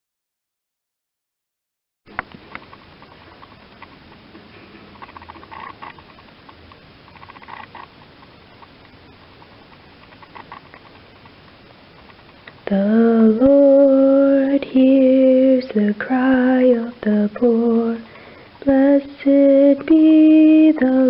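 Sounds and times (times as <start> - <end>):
woman singing a hymn: 12.6 - 21.0.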